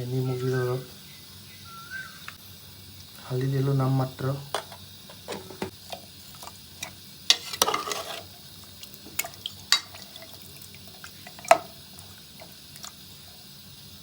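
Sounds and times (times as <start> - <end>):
scraping and rustling in pot: 4.6 - 8.5.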